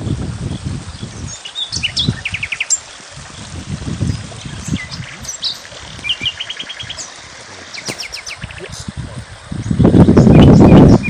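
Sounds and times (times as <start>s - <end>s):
small songbirds chirping: 0.0s - 11.0s
low rumbling gusts: 3.1s - 11.0s.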